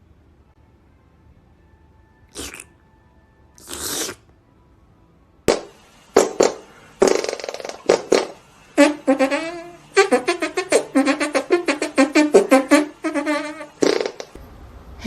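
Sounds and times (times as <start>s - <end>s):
breathy hissing: 3.6s - 4.2s, 6.2s - 14.4s
brass horn blasts: 8.8s - 14.0s.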